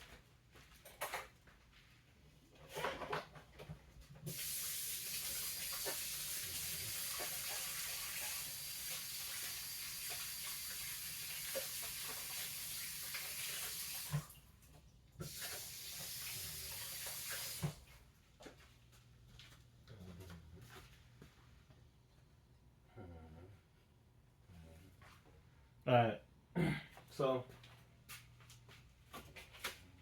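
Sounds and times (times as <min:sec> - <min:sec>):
tap running into sink: 0:04.3 - 0:14.3, 0:15.2 - 0:17.8.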